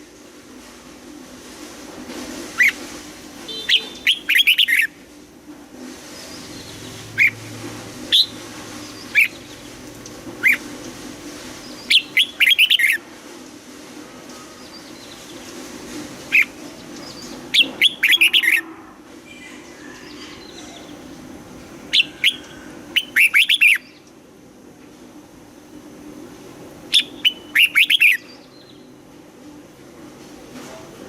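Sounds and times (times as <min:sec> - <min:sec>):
bird chattering notes: 0:03.5 - 0:04.9, 0:11.8 - 0:13.0, 0:16.3 - 0:18.7, 0:21.9 - 0:23.9, 0:26.9 - 0:28.3
bird whistling notes: 0:03.5 - 0:05.0, 0:06.2 - 0:07.5, 0:08.1 - 0:09.5, 0:10.4 - 0:10.6, 0:11.8 - 0:13.0, 0:16.3 - 0:21.0, 0:21.9 - 0:24.0, 0:26.9 - 0:28.4.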